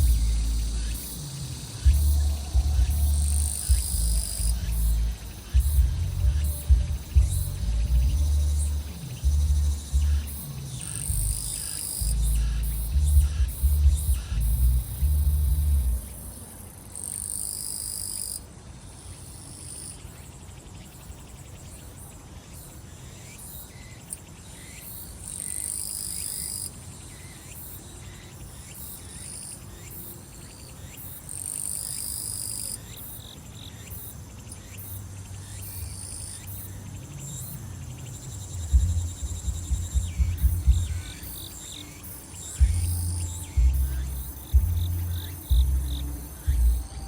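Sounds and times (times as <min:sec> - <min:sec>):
music bass thumps: 0:00.0 - 0:01.0, 0:01.8 - 0:10.4, 0:11.1 - 0:16.0, 0:38.6 - 0:41.3, 0:42.6 - 0:47.0
loud insect buzzing: 0:00.0 - 0:16.1, 0:35.5 - 0:47.0
insects and cicadas chorus: 0:00.0 - 0:47.0.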